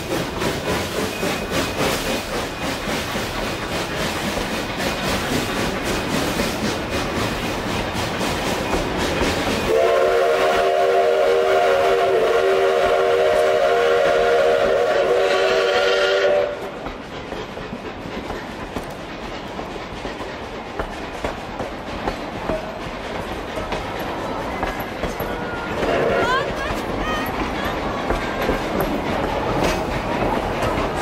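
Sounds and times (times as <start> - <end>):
train rumbling on rails: 0.0 - 31.0
train horn chord: 9.7 - 16.7.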